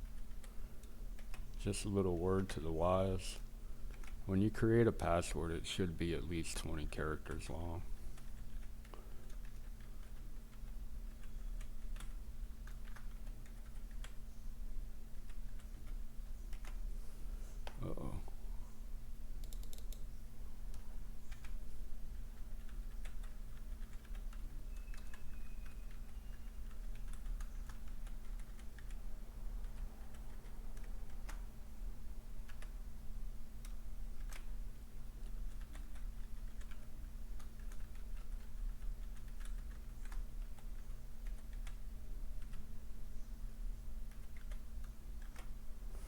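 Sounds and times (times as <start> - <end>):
keyboard typing: 0.0 - 1.5, 8.2 - 14.2, 15.1 - 16.8, 19.4 - 20.1, 20.7 - 29.0, 29.6 - 31.4, 32.4 - 32.7, 35.2 - 41.8, 42.4 - 42.7, 44.0 - 45.6
steady low hum: 0.0 - 46.0.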